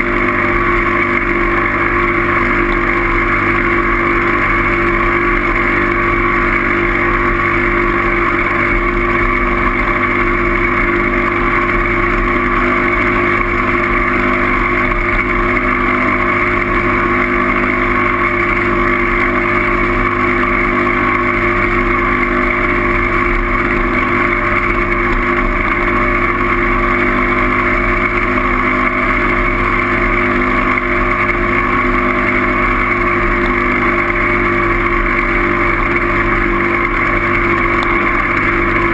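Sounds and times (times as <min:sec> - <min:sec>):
constant hum: 0:00.0 - 0:38.9.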